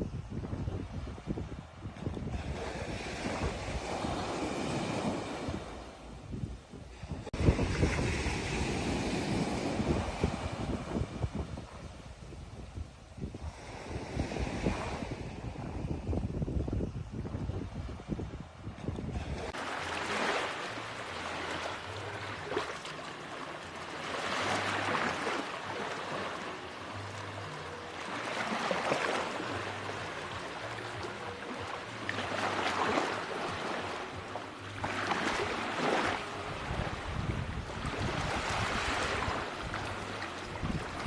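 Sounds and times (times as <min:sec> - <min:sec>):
ocean surf breaking: 0:19.3 - 0:34.2.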